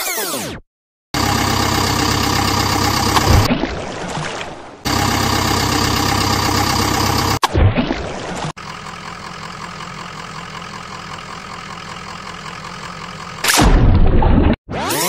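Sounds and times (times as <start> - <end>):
engine idling: 1.2 - 3.5, 4.9 - 7.4, 8.6 - 13.5
heavy low thump: 3.2 - 3.5.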